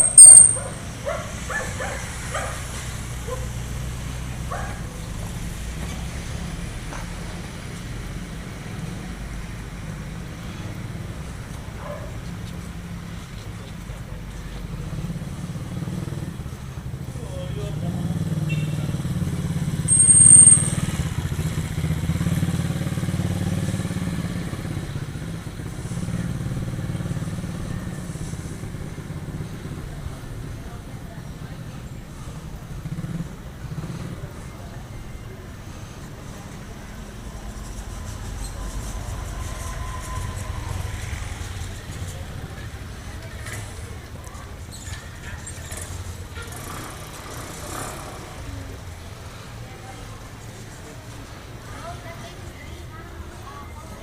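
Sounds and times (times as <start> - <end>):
shrill high tone: 0.0 - 0.9, 19.9 - 20.9
small dog yapping: 0.0 - 2.6
low street hum: 0.0 - 54.0
motorcycle engine running: 13.9 - 31.6, 32.2 - 34.5.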